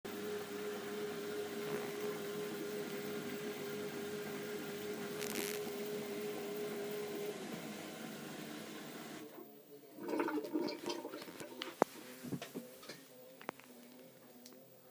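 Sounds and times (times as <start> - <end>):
washing machine running: 0.1 - 11.7
short hiss: 5.2 - 5.7.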